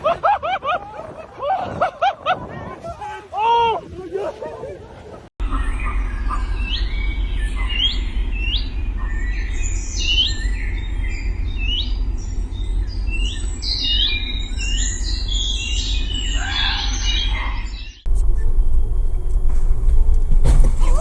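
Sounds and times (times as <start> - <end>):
steady low rumble: 4.6 - 21.0
songbirds chirping: 4.9 - 18.5.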